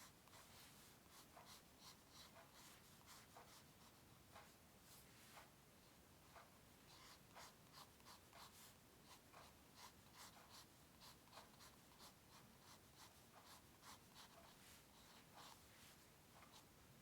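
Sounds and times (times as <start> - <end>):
drawing tool scratching on paper: 6.9 - 15.7.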